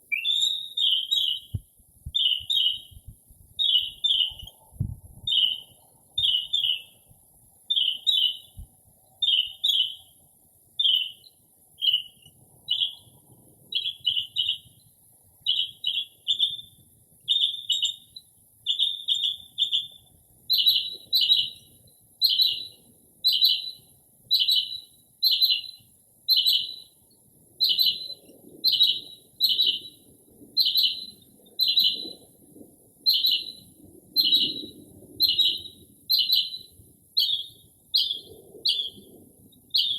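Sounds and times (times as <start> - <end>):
mockingbird singing: 0.1 - 1.6, 2.2 - 3.0, 3.6 - 4.5, 5.3 - 6.9, 22.2 - 26.9, 27.6 - 30.0, 30.6 - 32.1, 33.1 - 39.0.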